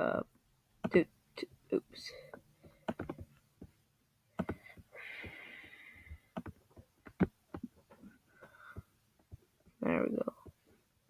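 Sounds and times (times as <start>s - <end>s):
clicks or taps on a device: 2.6s - 3.7s.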